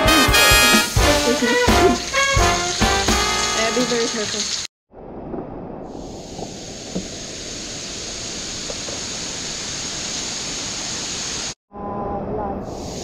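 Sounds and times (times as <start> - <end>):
rainwater rushing through cave: 0.0 - 11.6.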